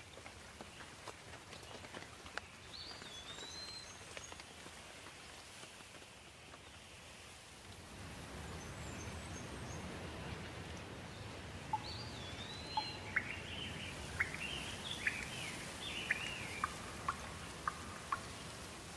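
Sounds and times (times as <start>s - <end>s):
steady rain: 0.0s - 18.9s
birds singing and chirping: 11.7s - 18.4s.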